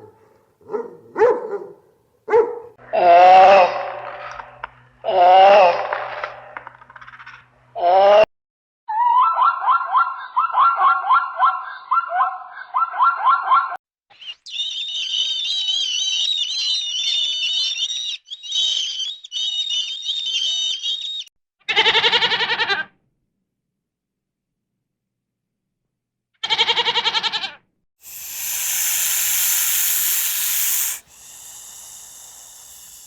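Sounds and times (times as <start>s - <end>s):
short wavering bleat: 26.4s - 27.6s
fast repeated animal calls: 28.0s - 33.0s.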